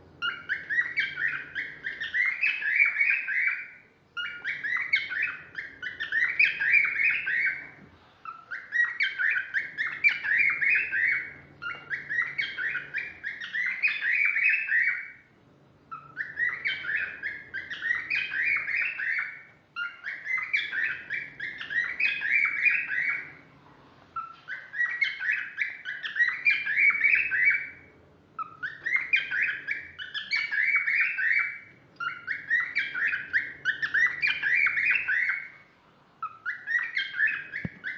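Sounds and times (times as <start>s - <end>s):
cockatiel whistling: 0.2s - 15.3s, 15.9s - 23.4s, 24.2s - 37.9s.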